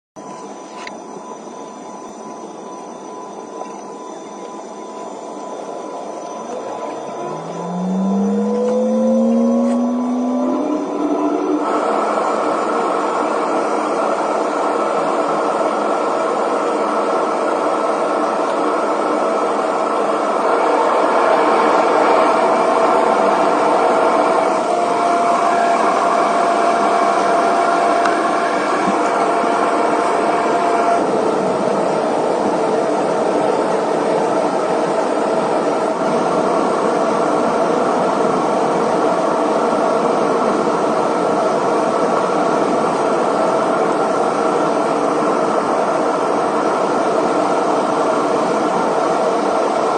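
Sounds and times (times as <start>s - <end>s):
steady whine: 0.2s - 49.9s
jet engines rushing: 5.3s - 16.2s.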